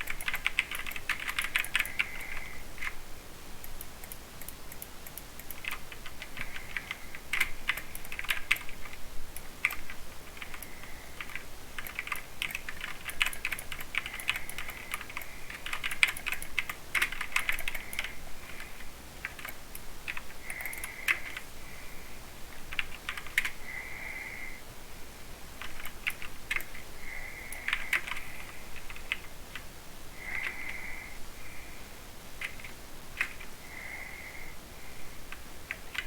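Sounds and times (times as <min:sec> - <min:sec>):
mechanical keyboard typing: 0:00.0 - 0:03.0, 0:03.6 - 0:21.4, 0:22.7 - 0:23.6, 0:25.6 - 0:26.8, 0:27.5 - 0:28.2, 0:32.4 - 0:33.5, 0:35.7 - 0:36.0.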